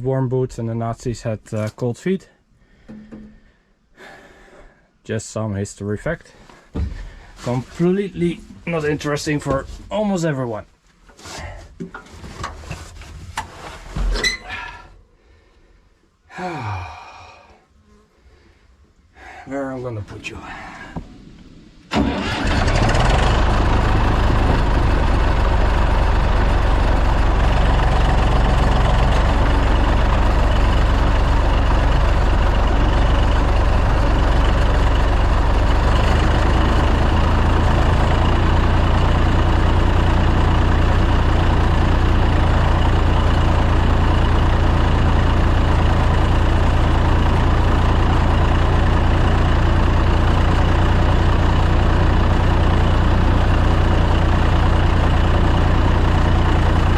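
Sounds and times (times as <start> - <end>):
tractor engine running: 21.9 - 56.9.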